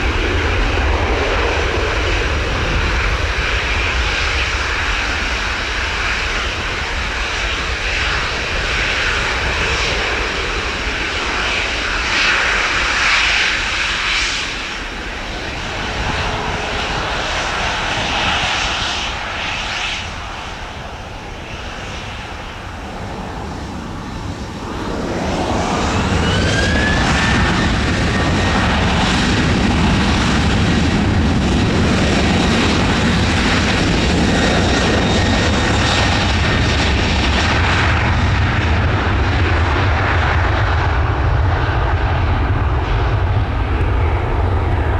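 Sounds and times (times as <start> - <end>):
jet engines spooling up: 0.0 - 38.6.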